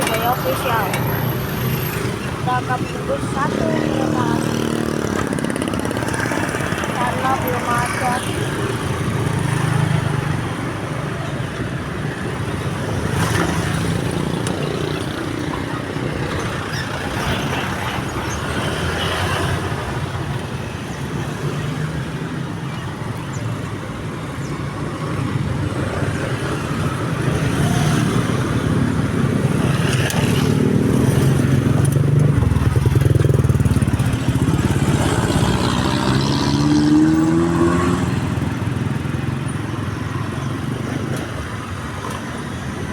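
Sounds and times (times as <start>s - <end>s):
traffic passing: 0.0s - 42.9s
engine revving: 29.4s - 38.4s.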